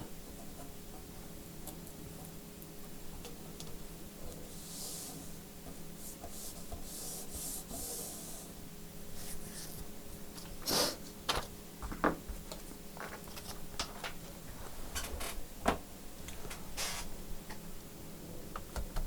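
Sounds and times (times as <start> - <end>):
soft rubbing strokes: 4.4 - 5.4, 6.0 - 8.5, 9.1 - 9.9.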